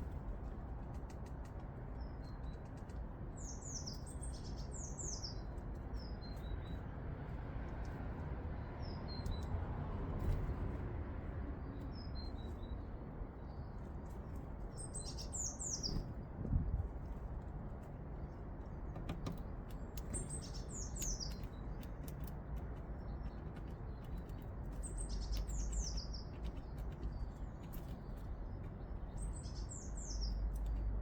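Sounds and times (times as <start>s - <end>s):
songbirds calling: 1.9s - 6.9s, 11.6s - 16.3s, 18.1s - 31.0s.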